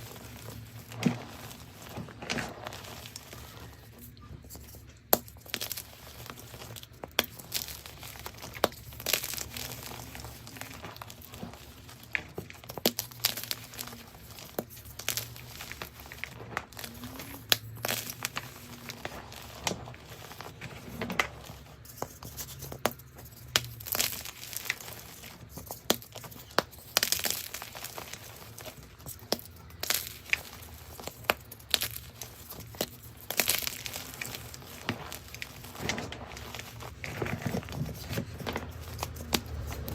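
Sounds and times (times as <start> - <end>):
chalk crunching and crumbling: 0.0 - 39.9.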